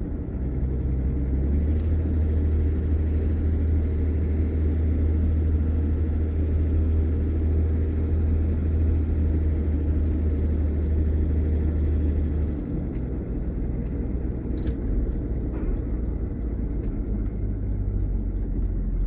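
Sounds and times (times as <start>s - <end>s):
low engine drone: 0.0s - 19.0s
road noise: 0.0s - 19.0s.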